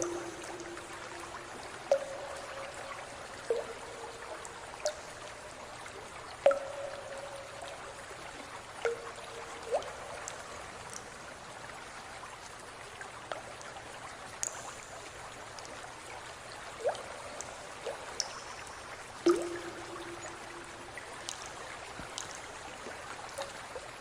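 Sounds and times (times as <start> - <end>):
trickle of running water: 0.0 - 24.0
water drips and plops: 0.0 - 24.0.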